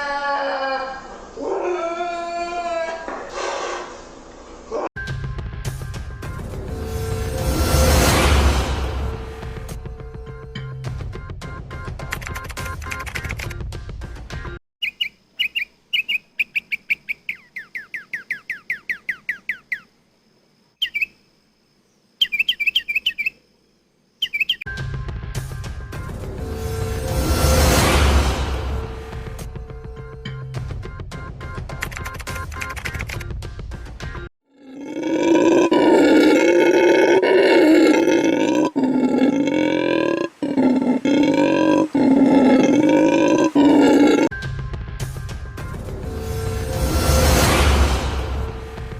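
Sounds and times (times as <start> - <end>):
bird chirping: 14.8 - 20.0, 20.8 - 21.3, 21.9 - 24.7
large animal roaring: 34.5 - 44.3.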